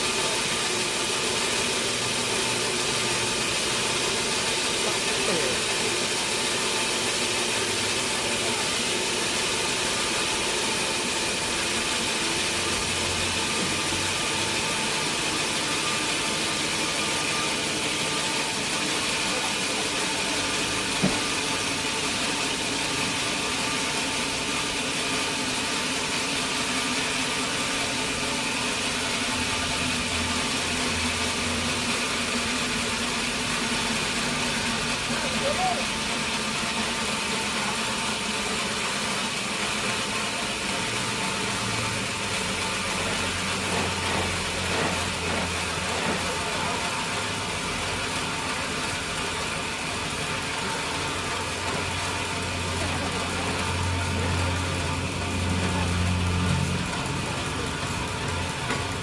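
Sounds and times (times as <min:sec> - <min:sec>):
sawmill machinery running: 0:00.0 - 0:59.0.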